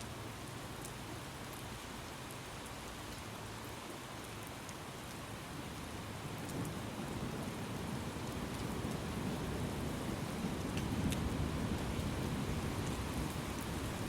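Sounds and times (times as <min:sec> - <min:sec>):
sharp raindrop ticks: 0:00.0 - 0:05.4, 0:06.3 - 0:07.6, 0:08.2 - 0:09.9, 0:10.5 - 0:14.0
steady rain: 0:00.0 - 0:14.0
low rumble of thunder: 0:06.1 - 0:14.0.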